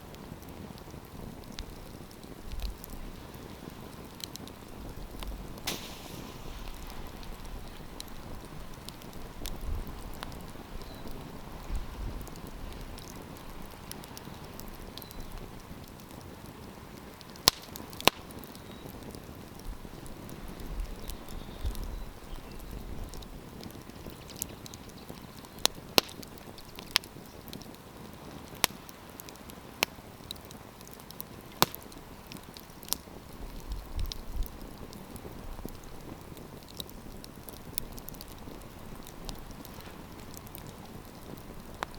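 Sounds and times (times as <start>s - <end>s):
campfire crackling: 0.0s - 41.9s
sharp loud fire pops: 5.2s - 9.6s.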